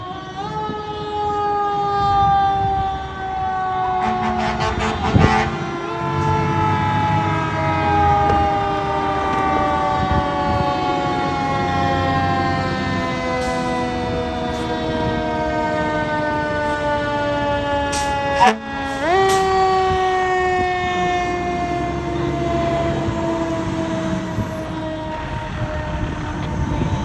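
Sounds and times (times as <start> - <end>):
fire truck siren wailing: 0.0 - 27.0
truck engine rumble: 1.0 - 27.0
short sharp horn blasts: 4.0 - 5.6, 18.3 - 18.6.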